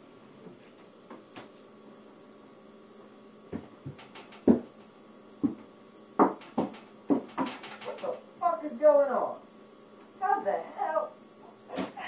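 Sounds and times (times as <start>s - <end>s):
irregular thumps and knocks: 3.5s - 8.2s.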